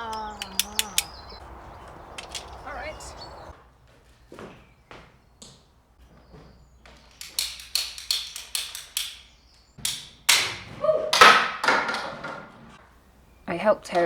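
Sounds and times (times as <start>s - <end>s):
sharp plastic clicks: 0.0s - 3.5s, 7.0s - 10.6s.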